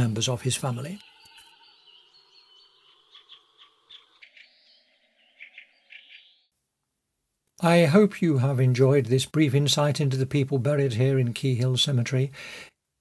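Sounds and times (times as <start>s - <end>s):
birds chirping: 0.0s - 6.5s
soft background hiss: 6.6s - 13.0s.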